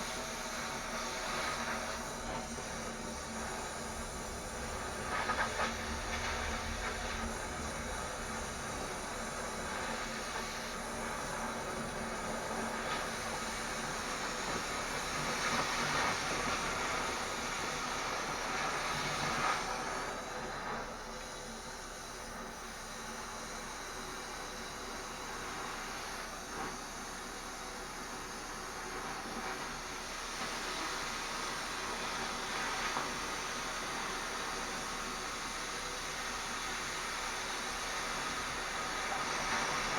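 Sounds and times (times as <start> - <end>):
steady hissing: 0.0 - 13.7.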